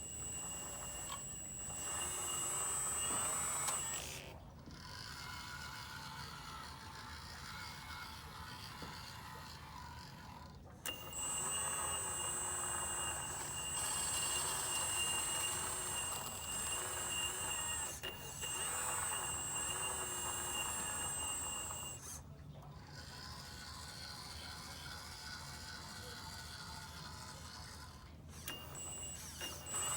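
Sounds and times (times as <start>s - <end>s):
model excavator motors whining: 0.0s - 29.9s.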